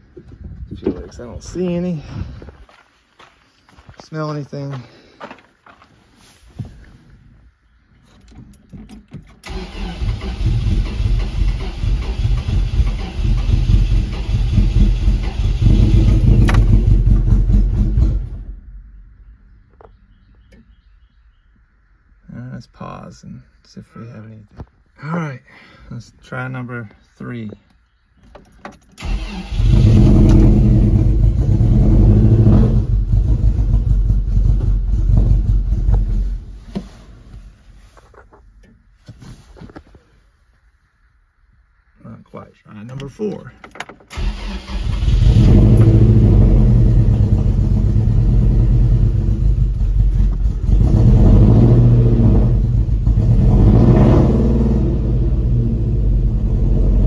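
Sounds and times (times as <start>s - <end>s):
engine starting and dying: 9.2s - 18.7s, 28.9s - 36.4s, 44.0s - 57.0s
engine cranking and firing unevenly: 9.4s - 18.6s.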